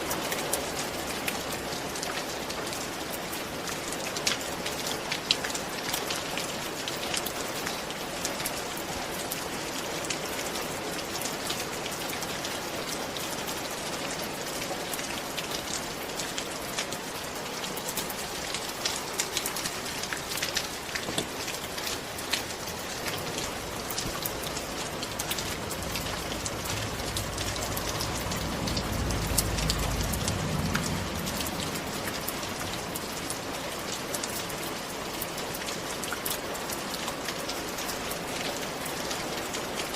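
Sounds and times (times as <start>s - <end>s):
steady rain falling: 0.0s - 39.9s
low rumble: 23.2s - 33.9s.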